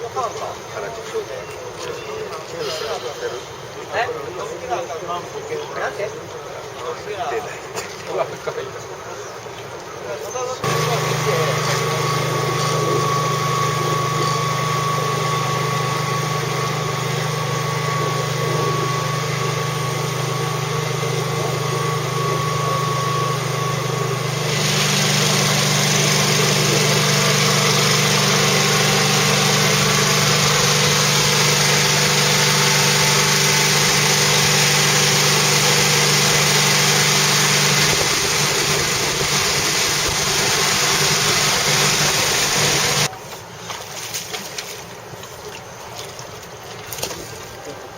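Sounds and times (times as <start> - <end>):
engine humming: 10.6 - 47.9.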